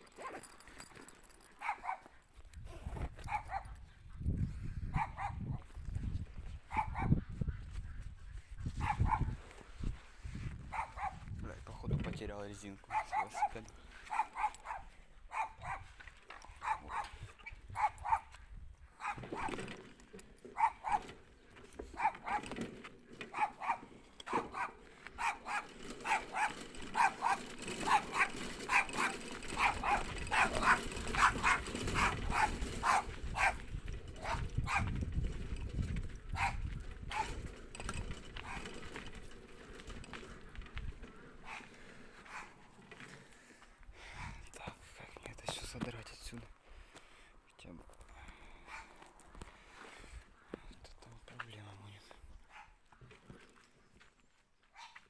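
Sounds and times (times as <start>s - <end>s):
dog barking: 1.6s - 2.1s, 3.3s - 3.8s, 4.9s - 5.6s, 6.7s - 7.2s, 8.8s - 9.4s, 10.7s - 11.2s, 12.9s - 15.9s, 16.5s - 18.3s, 19.0s - 19.6s, 20.6s - 21.1s, 22.0s - 22.6s, 23.3s - 33.6s, 34.2s - 34.9s, 36.3s - 37.4s, 38.4s - 38.6s, 41.4s - 41.7s, 42.3s - 42.6s, 48.7s - 49.0s, 52.5s - 52.8s, 54.7s - 55.0s.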